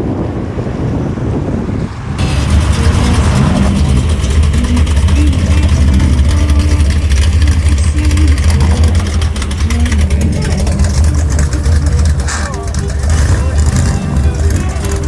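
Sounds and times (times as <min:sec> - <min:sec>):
car engine idling: 0:02.1 - 0:15.0.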